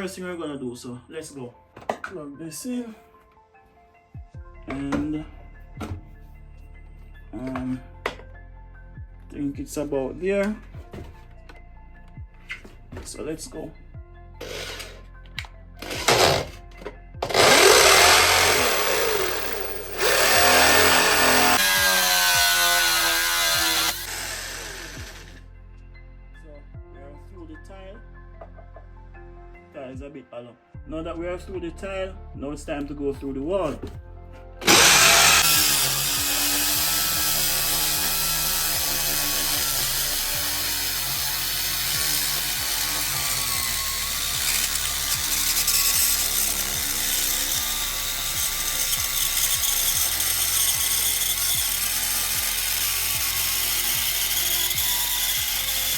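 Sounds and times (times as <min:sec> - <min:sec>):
power drill boring through tile: 0:14.4 - 0:15.0, 0:15.8 - 0:16.6, 0:17.2 - 0:25.4, 0:34.6 - 0:55.9.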